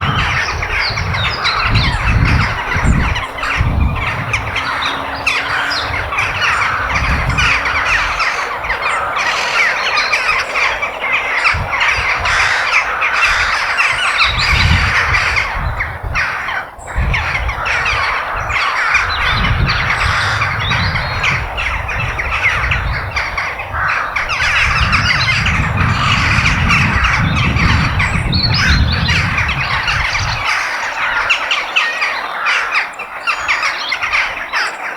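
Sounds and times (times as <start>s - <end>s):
low rumble: 0.0s - 9.2s
crows cawing: 0.0s - 34.9s.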